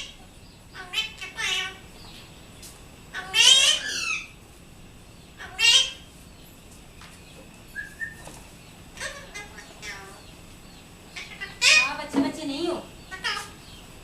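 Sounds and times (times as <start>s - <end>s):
parrot calling shrilly: 0.8s - 1.8s, 3.1s - 4.4s, 5.4s - 6.1s, 9.0s - 10.2s, 11.2s - 12.0s, 13.1s - 13.6s.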